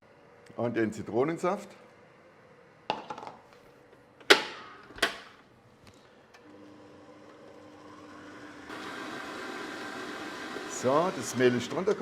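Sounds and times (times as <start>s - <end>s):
stand mixer motor humming: 6.4s - 12.0s.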